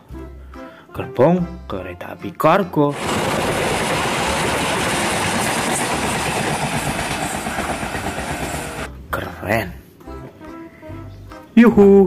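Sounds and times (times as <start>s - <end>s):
train wheels rushing on rails: 2.9s - 8.9s.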